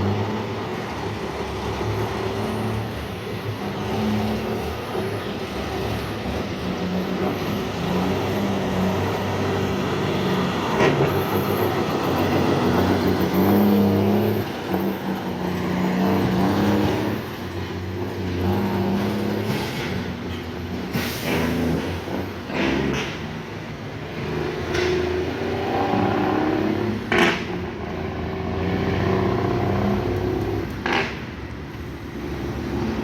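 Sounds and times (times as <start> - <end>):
heavy truck engines passing: 0.0 - 33.0.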